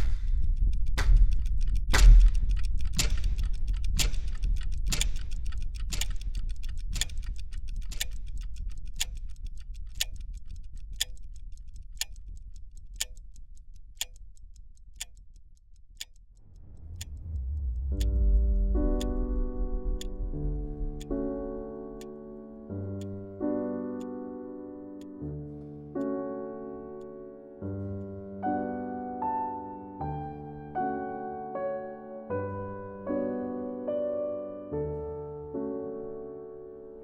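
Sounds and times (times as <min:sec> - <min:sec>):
clock ticking: 0:00.0 - 0:22.2
low rumble: 0:00.0 - 0:22.7
low swell: 0:16.3 - 0:22.7.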